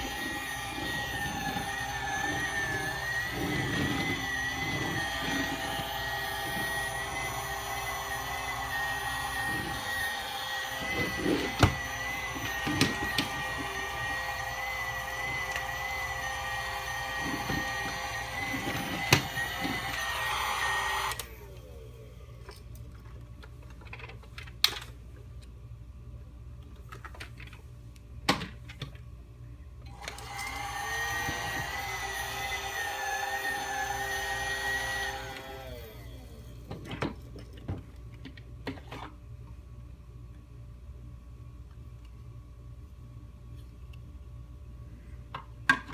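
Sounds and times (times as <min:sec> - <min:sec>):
toy vacuum motor whining: 0:00.0 - 0:22.6, 0:29.9 - 0:37.2.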